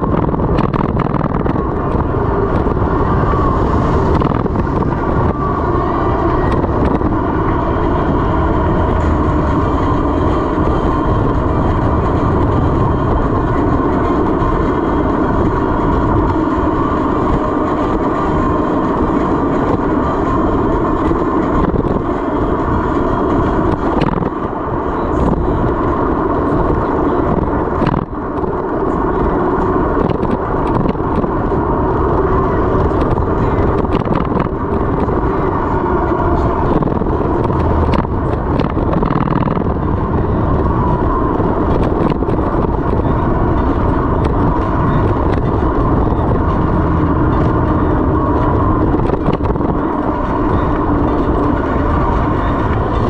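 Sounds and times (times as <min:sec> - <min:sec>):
wind rush on microphone: 0:00.0 - 0:53.0
bike rattles and knocks: 0:36.6 - 0:47.6.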